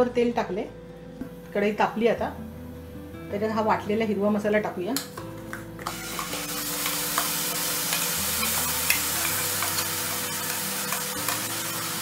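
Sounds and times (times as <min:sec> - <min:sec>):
paste sizzling in hot oil: 0:05.8 - 0:12.0.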